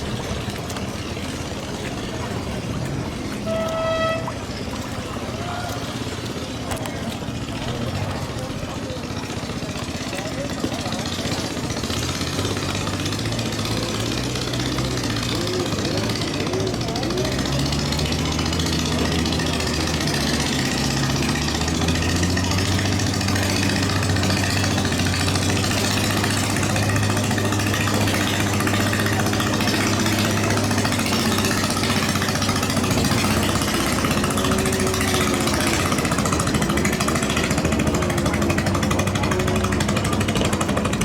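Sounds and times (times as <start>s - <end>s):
racing boat engines running: 0.0s - 41.0s.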